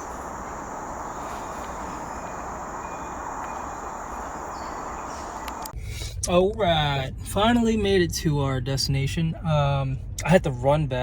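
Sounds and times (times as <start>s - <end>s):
even rushing noise: 0.0s - 5.7s
high-pitched insect trill: 0.0s - 5.7s.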